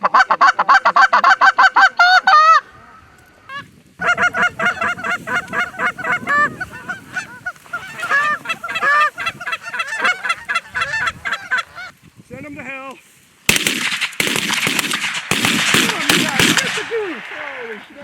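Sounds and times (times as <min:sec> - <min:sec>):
goose call clucks and honks: 0:00.0 - 0:02.6, 0:03.4 - 0:11.9.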